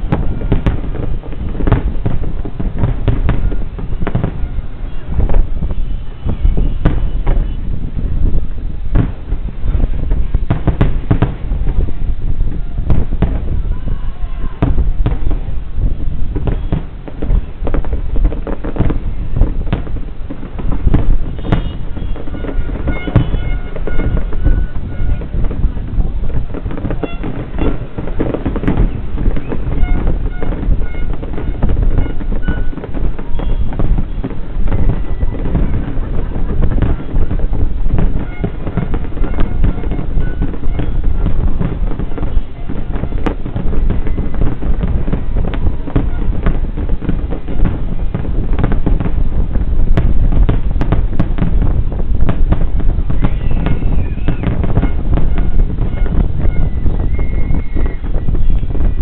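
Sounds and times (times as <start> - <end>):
continuous low rumble: 0.0 - 59.0
fireworks bangs and crackles: 0.0 - 59.0.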